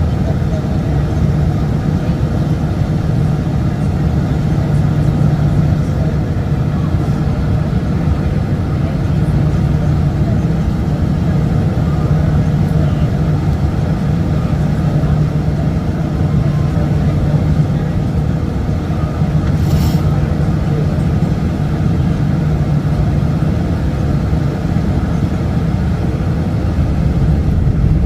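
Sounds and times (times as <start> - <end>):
jet engine rumble: 0.0 - 28.0
rushing air: 19.5 - 20.2
brief hiss: 19.6 - 20.1.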